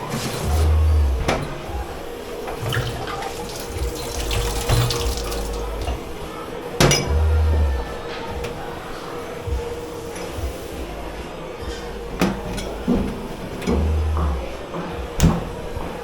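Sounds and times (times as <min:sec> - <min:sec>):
crockery clinking: 0:00.0 - 0:08.9, 0:11.6 - 0:16.0
tap water running into sink: 0:02.5 - 0:06.2.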